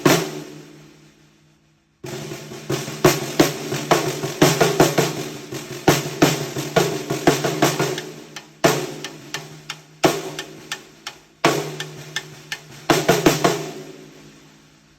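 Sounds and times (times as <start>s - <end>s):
snare drum played with sticks: 3.1s - 13.9s.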